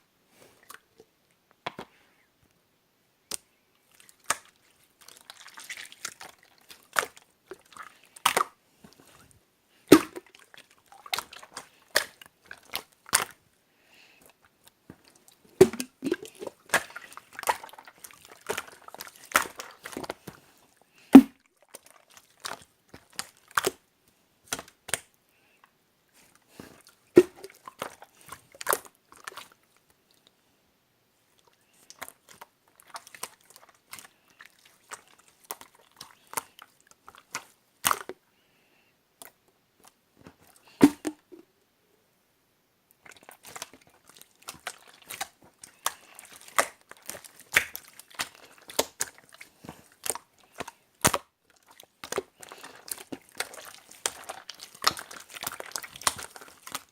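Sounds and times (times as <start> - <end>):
slime clicking and popping: 9.9 - 10.3, 15.6 - 17.8, 44.5 - 49.2, 52.0 - 56.9.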